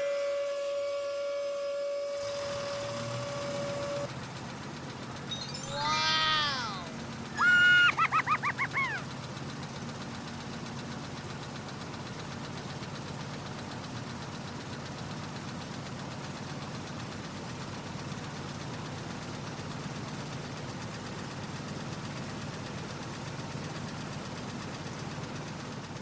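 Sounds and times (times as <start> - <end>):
excavator motor humming: 0.0 - 19.2
baby monkey crying: 5.7 - 9.0.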